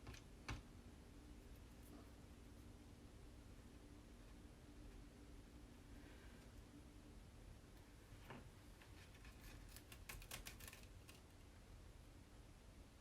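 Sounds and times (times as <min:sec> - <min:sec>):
scraper clicks and scrapes: 0:09.0 - 0:11.2.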